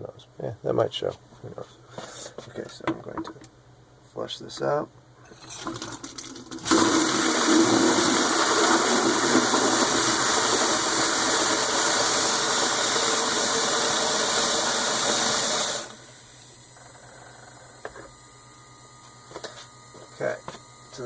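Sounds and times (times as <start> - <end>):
water gushing into bucket: 5.3 - 16.1
faint hum: 15.9 - 21.0.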